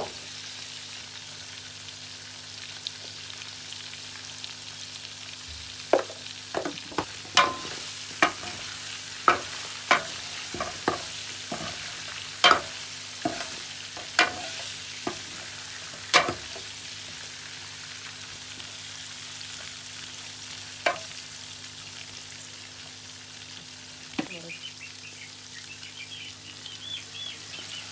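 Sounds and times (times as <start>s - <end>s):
chicken sizzling in a pan: 0.0s - 27.9s
spoon scraping a pan: 6.0s - 16.8s, 20.9s - 21.1s.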